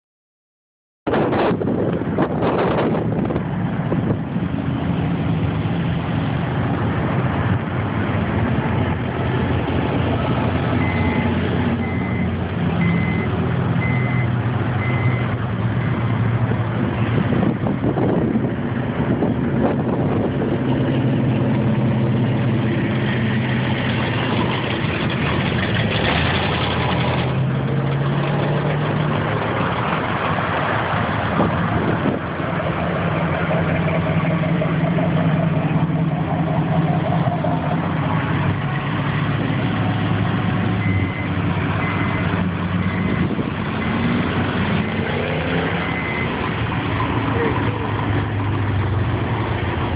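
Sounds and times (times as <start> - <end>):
car engines in slow traffic: 1.1 - 49.9
short high beeps: 10.8 - 16.2, 40.8 - 42.2, 45.7 - 46.4.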